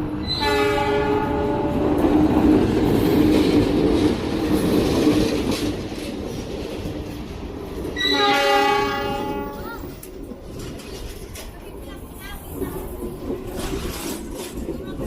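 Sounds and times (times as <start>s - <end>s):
train wheels clattering on rails: 0.0s - 15.0s
train horn: 0.2s - 1.9s, 8.0s - 9.8s.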